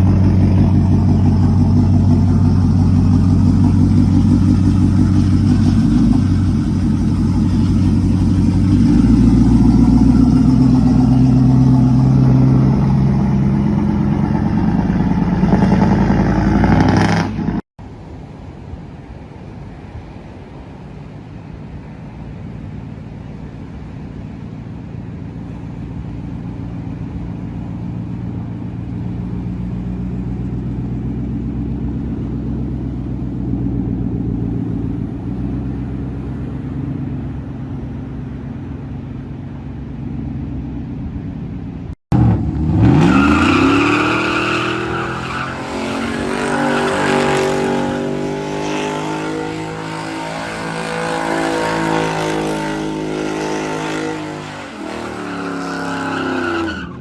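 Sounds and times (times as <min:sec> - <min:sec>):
engine revving with whine: 0:00.0 - 0:17.7, 0:42.1 - 0:57.0
truck engine rumbling: 0:00.0 - 0:17.7, 0:21.8 - 0:57.0.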